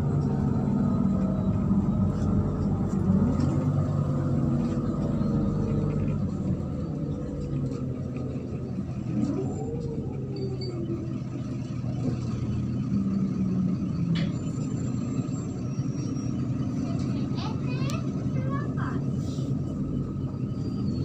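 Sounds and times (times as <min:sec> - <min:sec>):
bus engine drone: 0:00.0 - 0:21.0
road rumble: 0:00.0 - 0:21.0.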